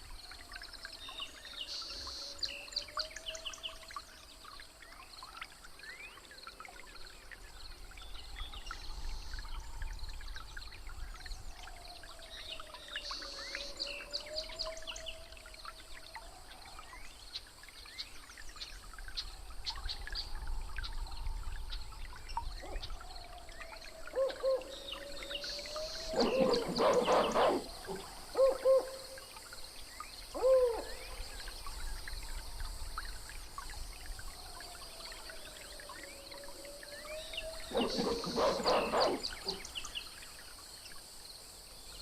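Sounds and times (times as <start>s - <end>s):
short hooting calls: 26.0s - 29.1s, 30.4s - 31.0s, 37.7s - 39.6s
harsh animal call: 26.1s - 28.9s, 37.7s - 39.6s.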